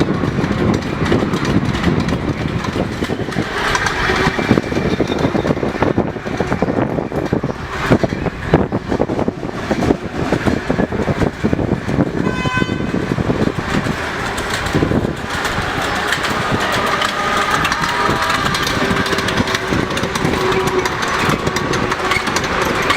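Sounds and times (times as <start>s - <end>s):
miniature locomotive running: 0.0s - 22.9s
locomotive whistle: 12.2s - 13.1s, 15.3s - 22.9s.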